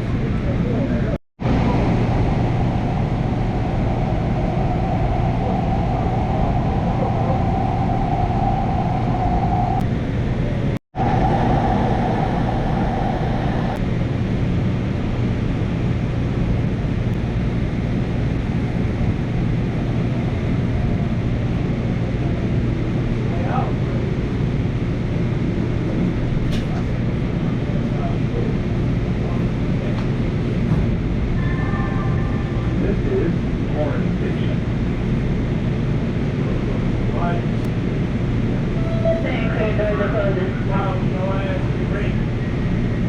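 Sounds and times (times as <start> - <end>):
train rumble: 0.0 - 43.0
train whine: 0.0 - 43.0.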